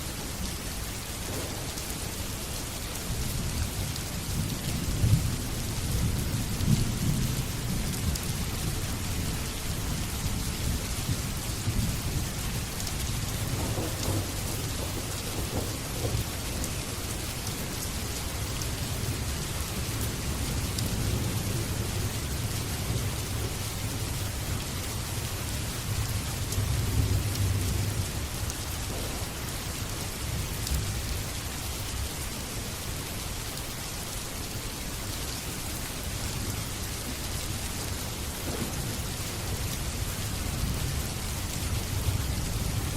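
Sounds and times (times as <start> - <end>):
rain falling: 0.0 - 42.9
rolling thunder: 1.2 - 9.1, 10.7 - 17.8, 25.4 - 31.1, 38.3 - 42.9.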